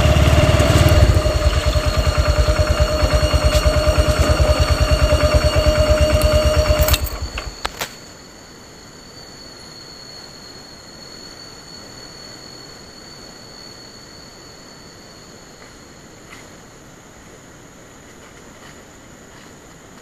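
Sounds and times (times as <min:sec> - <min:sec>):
small motorcycle engine running: 0:00.0 - 0:08.0
high-pitched insect drone: 0:00.0 - 0:16.1
sharp clicks: 0:00.9 - 0:08.0.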